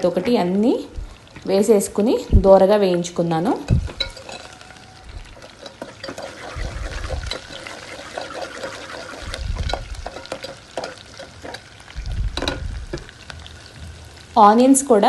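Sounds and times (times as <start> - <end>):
onions sizzling in oil: 0.0 - 15.0
spoon scraping a metal pot: 3.7 - 4.6, 5.2 - 11.7.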